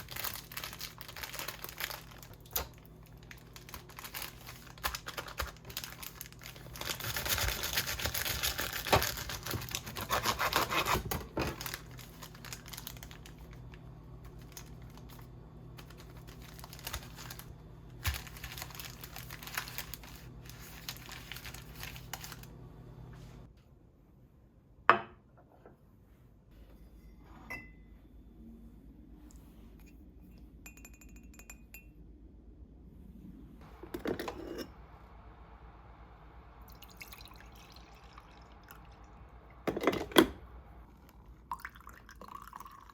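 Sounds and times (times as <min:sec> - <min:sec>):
packaging crinkling and tearing: 0:00.0 - 0:22.5
steady low hum: 0:00.0 - 0:24.9, 0:25.9 - 0:42.8.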